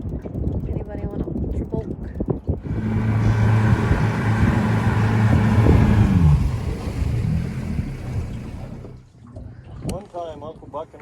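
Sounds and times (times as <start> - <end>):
boat engine droning: 2.6 - 9.1.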